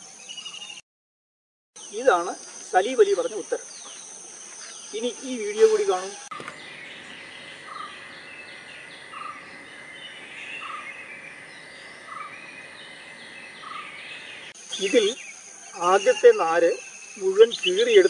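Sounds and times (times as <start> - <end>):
birds chirping: 1.9 - 18.0
steady high buzz: 6.2 - 15.2.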